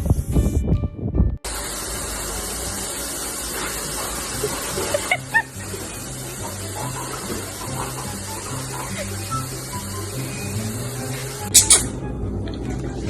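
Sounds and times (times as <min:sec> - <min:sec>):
running water hissing: 0:01.5 - 0:11.9
faint music: 0:02.1 - 0:13.0.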